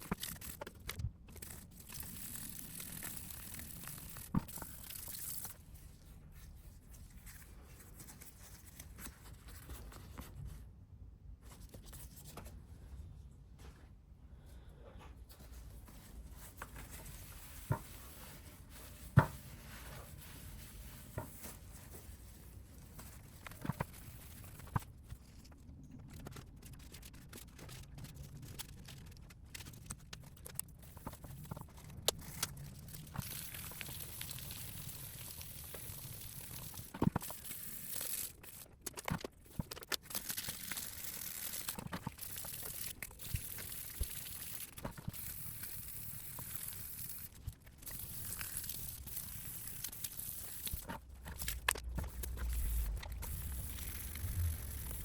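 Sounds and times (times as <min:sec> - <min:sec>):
rustling and scraping: 0:14.6 - 0:33.4, 0:47.2 - 0:55.0.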